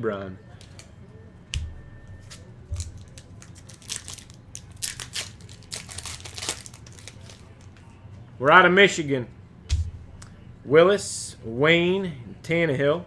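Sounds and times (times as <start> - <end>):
wrapper crinkling and tearing: 2.2 - 7.8
soft thump: 9.7 - 10.3.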